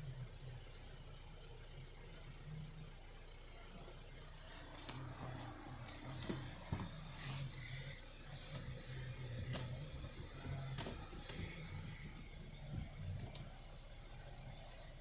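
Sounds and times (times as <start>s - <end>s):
diesel engine idling: 0.0s - 15.0s
light ticks and clicks: 8.4s - 13.6s.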